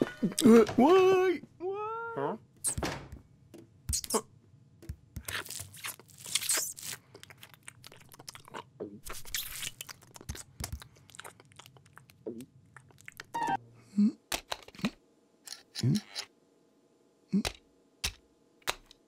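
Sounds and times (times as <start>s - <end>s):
cat crunching and chewing food: 6.9s - 8.7s, 9.7s - 13.3s.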